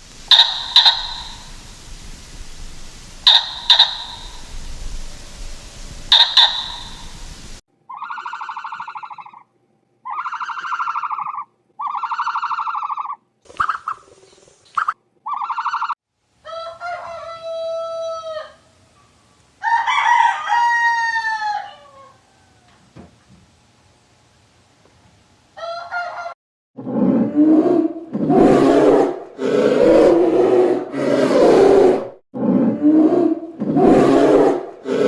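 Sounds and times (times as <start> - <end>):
short buzzy bird calls: 0.2 - 1.8, 3.2 - 4.6, 6.1 - 7.3
rooster crowing: 16.4 - 18.7, 19.6 - 22.9.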